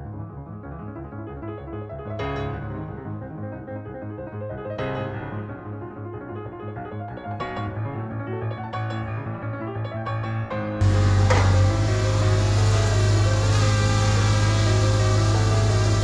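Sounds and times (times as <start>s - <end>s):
piano melody: 7.0s - 16.0s.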